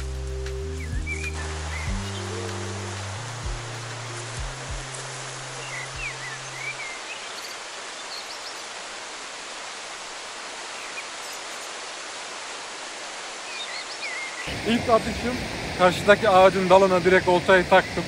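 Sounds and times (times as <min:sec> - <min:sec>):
stream water rushing: 0:00.0 - 0:18.0
small bird chirping: 0:00.7 - 0:08.7, 0:13.5 - 0:14.5.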